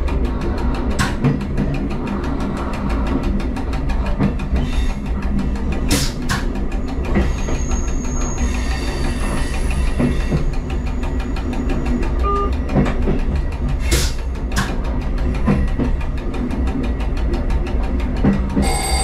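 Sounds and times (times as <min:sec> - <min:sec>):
wheels clicking over rail joint: 0:00.0 - 0:18.7
diesel train rumbling: 0:00.0 - 0:19.0.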